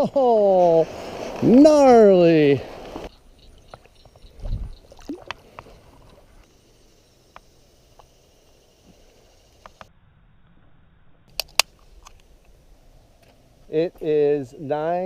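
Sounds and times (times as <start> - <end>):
water splashing: 3.7 - 6.3.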